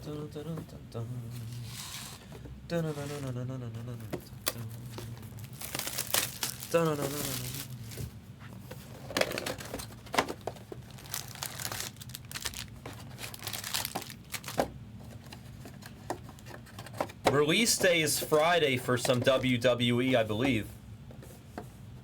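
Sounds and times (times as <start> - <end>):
faint steady hum: 0.0 - 22.0
plastic wrapping crinkling: 4.4 - 8.1, 9.3 - 14.7.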